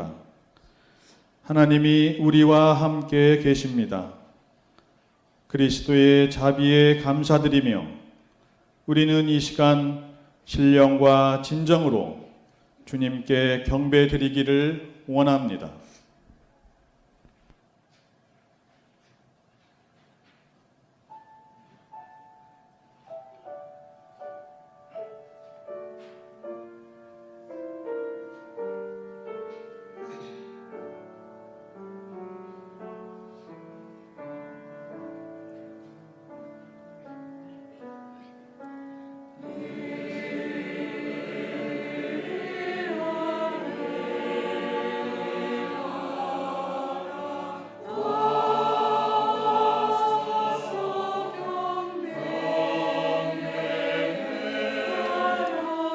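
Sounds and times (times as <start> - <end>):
choir singing: 39.4 - 55.9.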